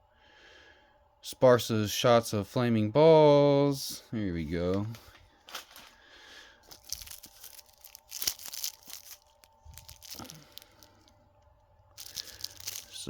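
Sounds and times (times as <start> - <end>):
packaging crinkling: 4.9 - 6.0, 6.6 - 11.2, 11.9 - 13.0.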